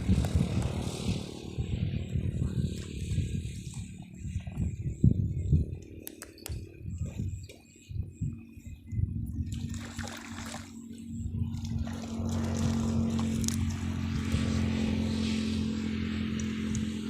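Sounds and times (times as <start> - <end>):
small engine running: 0.0 - 7.4, 9.7 - 17.0.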